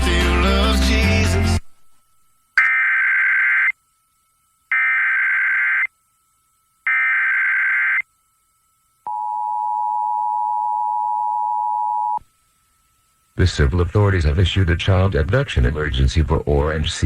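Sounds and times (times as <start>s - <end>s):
warbling digital data tones: 2.6s - 3.8s, 4.7s - 5.9s.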